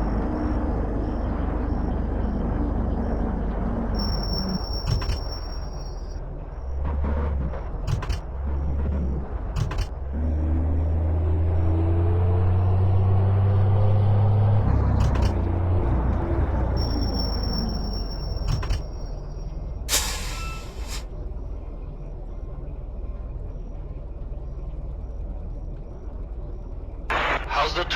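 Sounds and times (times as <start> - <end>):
air hiss: 19.9 - 21.1.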